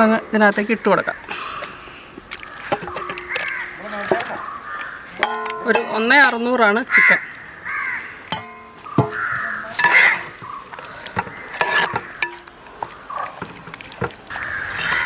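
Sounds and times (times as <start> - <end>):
clinks and knocks against pot: 2.6 - 7.7, 8.3 - 15.0.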